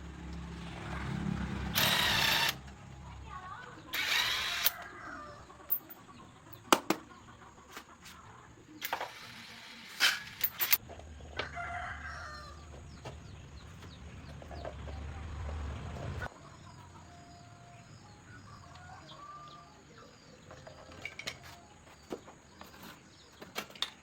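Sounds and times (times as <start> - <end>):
rooster crowing: 4.6 - 5.8, 11.4 - 12.8, 18.3 - 20.0
hand tools clinking and knocking: 5.6 - 7.1, 10.0 - 11.0, 20.5 - 24.0.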